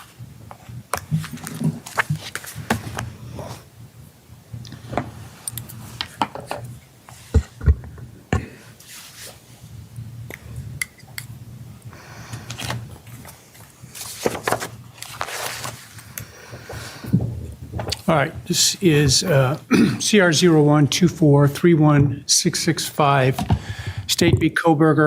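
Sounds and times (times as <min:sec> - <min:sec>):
paper rustling: 0:00.0 - 0:03.6, 0:12.3 - 0:18.2
low steady hum: 0:00.0 - 0:25.0.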